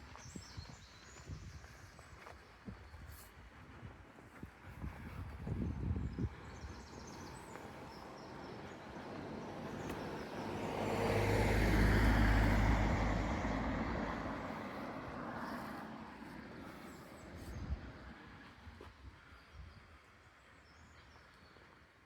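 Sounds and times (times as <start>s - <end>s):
vehicle driving past: 9.0s - 16.7s.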